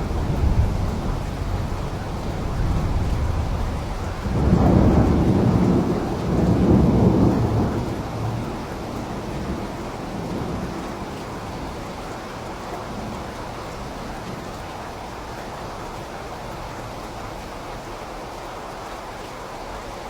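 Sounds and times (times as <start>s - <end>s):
thunder rumbling: 0.0s - 14.6s
steady rain: 0.0s - 20.0s.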